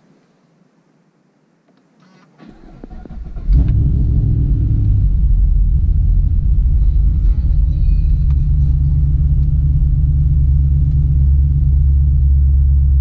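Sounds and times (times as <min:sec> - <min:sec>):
car engine idling: 0:02.6 - 0:13.0.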